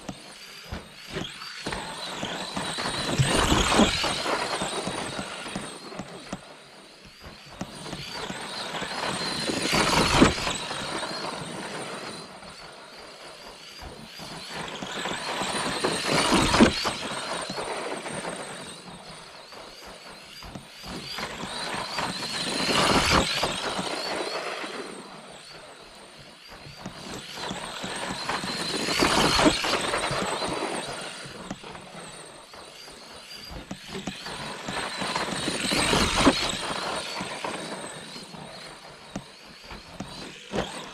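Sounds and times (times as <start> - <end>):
toy truck motor whine: 0.0 - 40.9.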